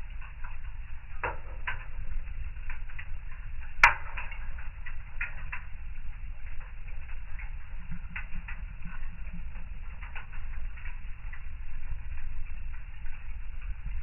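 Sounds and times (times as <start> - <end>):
fire crackling and popping: 0.0 - 14.0
low rumble of flame: 0.0 - 14.0
loud sharp snap of fire: 3.8 - 5.6.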